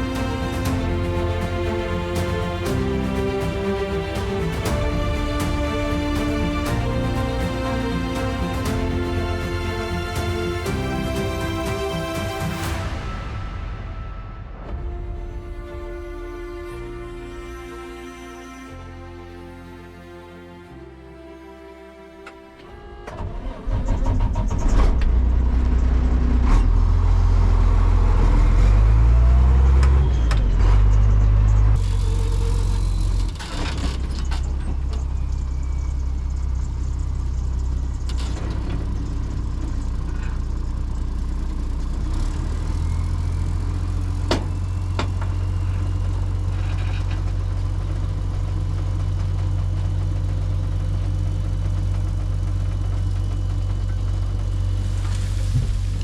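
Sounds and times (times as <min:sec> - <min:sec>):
vehicle engine running: 0:23.1 - 0:56.0.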